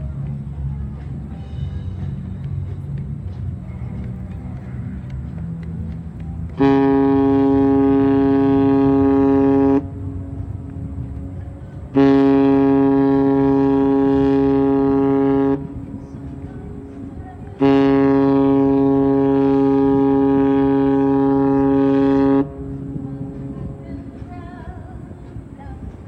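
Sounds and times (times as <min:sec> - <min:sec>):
low rumble: 0:00.0 - 0:26.0
ship whistle blasts: 0:06.6 - 0:09.9, 0:12.0 - 0:15.6, 0:17.6 - 0:22.7.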